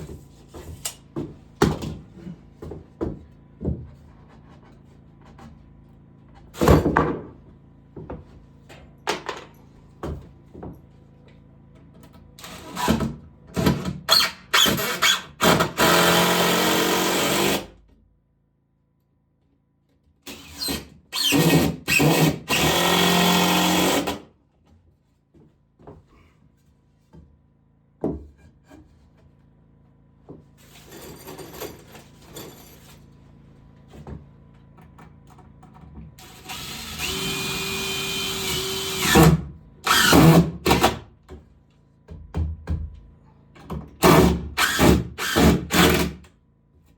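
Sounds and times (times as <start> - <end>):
power drill running: 14.1 - 17.7, 20.3 - 24.2, 36.2 - 41.0, 44.0 - 46.2.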